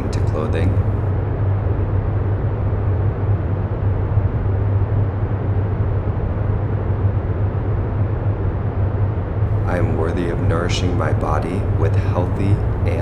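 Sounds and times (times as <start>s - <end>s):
low rumbling hum: 0.0s - 13.0s.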